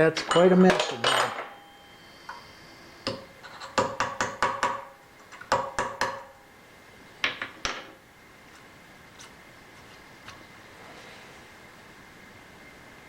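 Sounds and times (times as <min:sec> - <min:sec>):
steel tools clinking on metal: 0:00.2 - 0:01.9.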